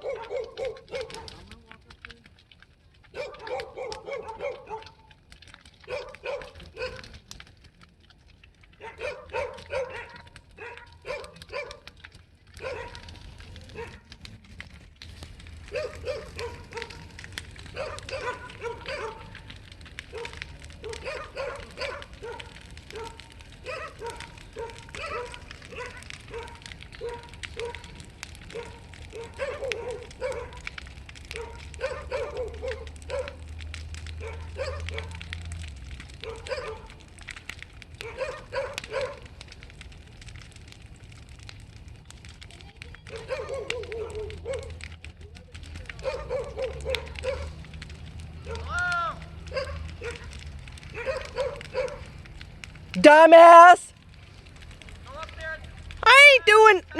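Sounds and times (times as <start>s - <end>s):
dog barking: 0.0s - 1.4s, 3.1s - 5.1s, 5.8s - 7.2s, 8.8s - 14.1s, 15.6s - 19.4s, 20.0s - 27.9s, 28.5s - 33.4s, 34.2s - 35.2s, 36.2s - 37.0s, 38.0s - 39.3s, 43.1s - 44.8s, 45.9s - 47.6s, 48.4s - 48.7s, 49.4s - 50.3s, 50.9s - 52.1s
bonfire crackling: 0.0s - 56.9s.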